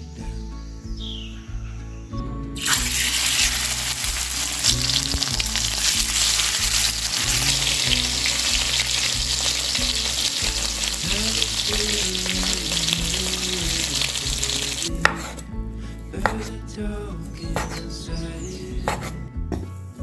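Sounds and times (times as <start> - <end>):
background music with a beat: 0.0 - 20.0
food sizzling in a pan: 2.6 - 15.0.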